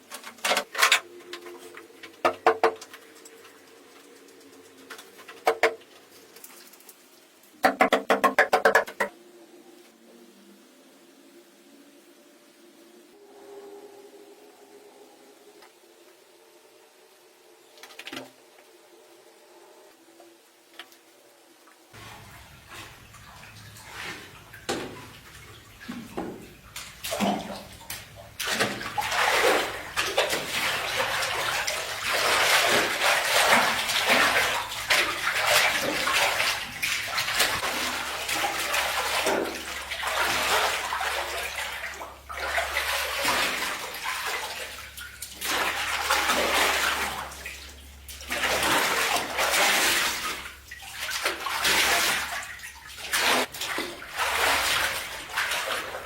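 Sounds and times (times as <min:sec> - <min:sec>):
water pouring and splashing: 0:00.0 - 0:08.0, 0:21.8 - 0:56.0.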